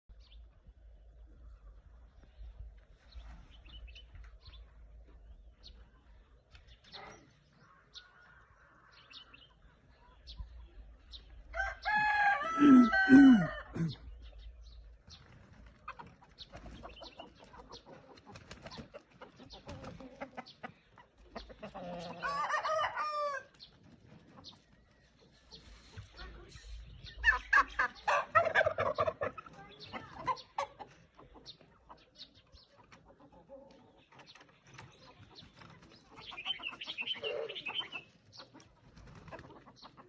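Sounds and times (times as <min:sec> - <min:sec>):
chickens clucking: 0:00.1 - 0:40.0
rooster crowing: 0:11.6 - 0:13.8, 0:22.2 - 0:23.5.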